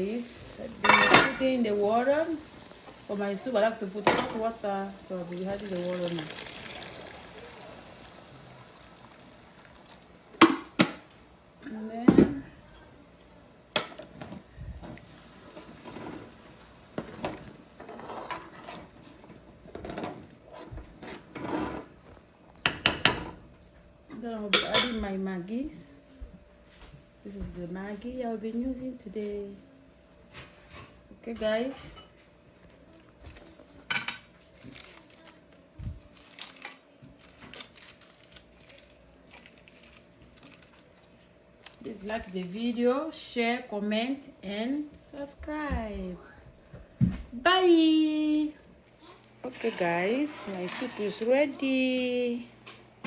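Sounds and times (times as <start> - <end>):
cookware knocks and clicks: 22.6 - 23.4.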